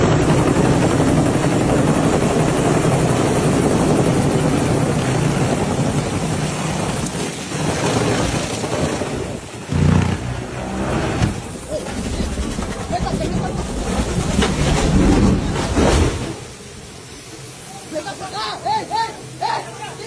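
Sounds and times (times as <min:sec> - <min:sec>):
helicopter rotor and engine: 0:00.0 - 0:15.7.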